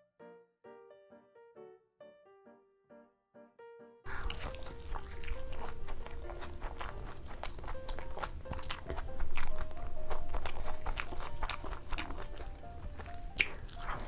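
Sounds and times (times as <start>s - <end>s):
crunchy chewing: 4.1s - 14.0s.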